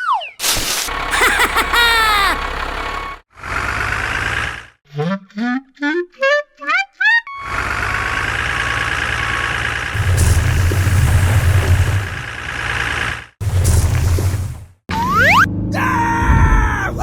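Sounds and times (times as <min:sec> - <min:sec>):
steady motor hum: 0:00.9 - 0:03.2, 0:10.0 - 0:12.3, 0:13.4 - 0:14.7.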